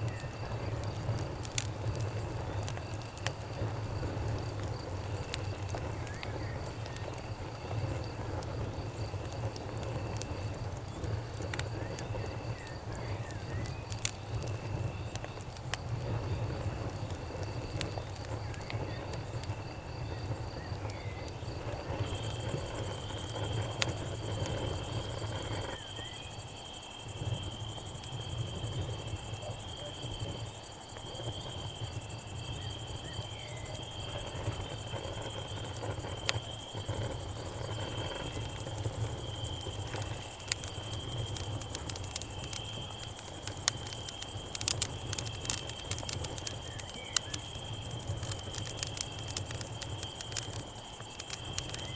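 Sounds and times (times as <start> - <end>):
campfire crackling and popping: 0.0 - 51.9
cicada drone: 0.0 - 51.9
cricket trill: 0.0 - 51.9.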